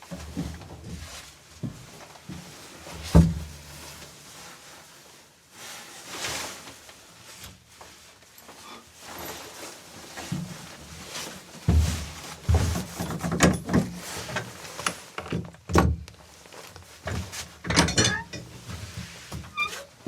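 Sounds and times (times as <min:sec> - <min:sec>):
soft rustling: 0:00.1 - 0:13.0, 0:16.2 - 0:17.6.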